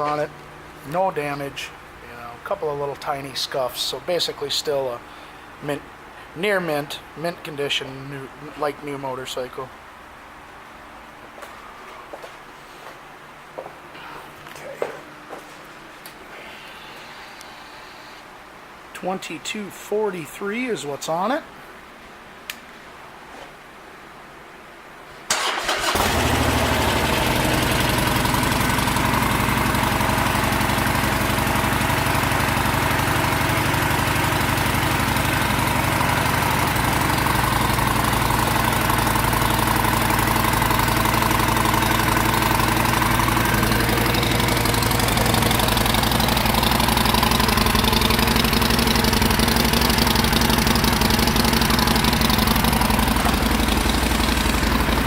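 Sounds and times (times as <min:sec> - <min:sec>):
motorcycle engine starting and idling: 0:25.3 - 0:55.0.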